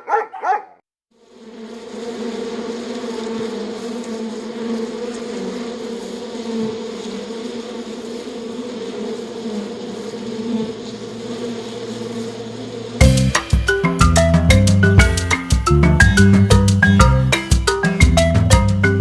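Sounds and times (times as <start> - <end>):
bees buzzing: 1.2 - 19.0
upbeat marimba music: 13.0 - 19.0.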